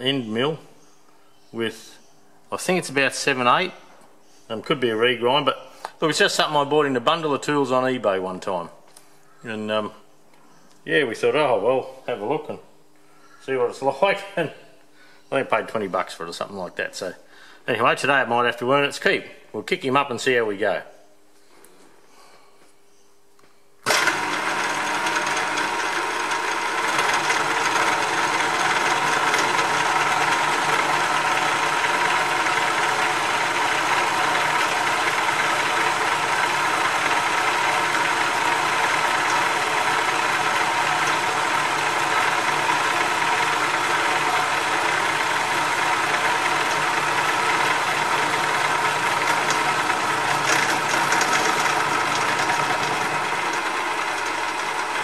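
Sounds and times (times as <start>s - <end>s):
milling machine running: 23.8s - 55.0s.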